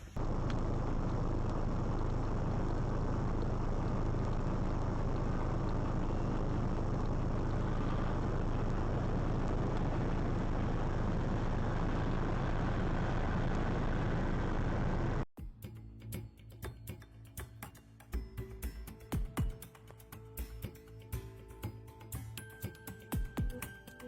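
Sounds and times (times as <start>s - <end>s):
vehicle engine and road noise: 0.0s - 15.3s.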